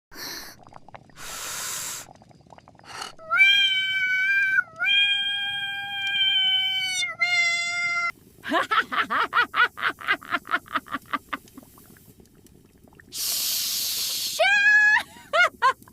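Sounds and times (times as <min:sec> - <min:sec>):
cat meowing long wails: 0:03.2 - 0:08.1.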